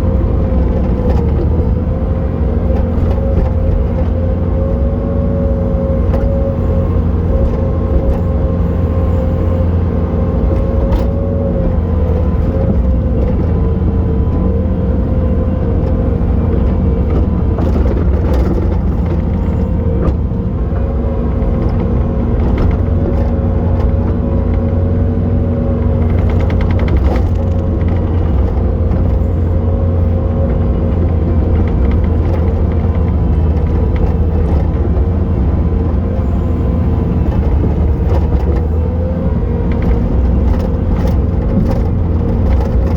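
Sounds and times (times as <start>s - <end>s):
track loader diesel engine: 0.0s - 42.9s
knocks and clatters: 26.0s - 29.4s, 39.6s - 42.9s.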